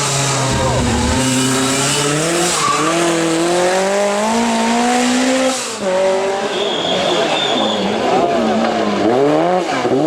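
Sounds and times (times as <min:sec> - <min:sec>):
rally car engine at high revs: 0:00.0 - 0:10.0.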